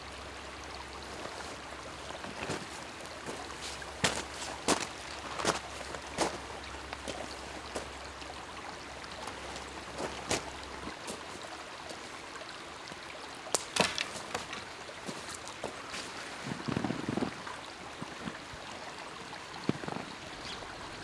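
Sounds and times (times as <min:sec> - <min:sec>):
water lapping at shore: 0:00.0 - 0:21.0
small splashes and clicks: 0:00.4 - 0:12.2, 0:12.8 - 0:18.5.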